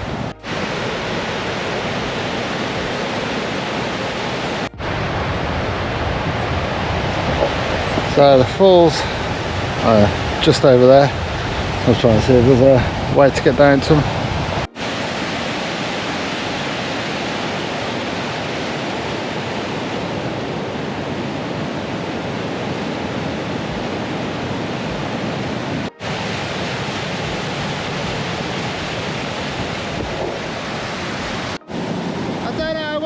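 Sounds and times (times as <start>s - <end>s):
waterfall roaring: 0.0s - 33.0s.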